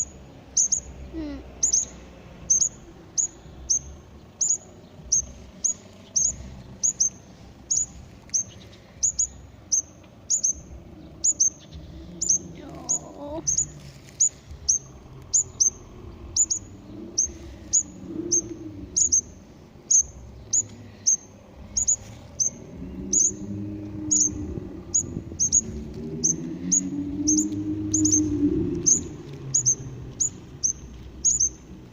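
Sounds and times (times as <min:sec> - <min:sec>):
chicks peeping: 0:19.9 - 0:31.6
low wavering sound: 0:21.5 - 0:31.2.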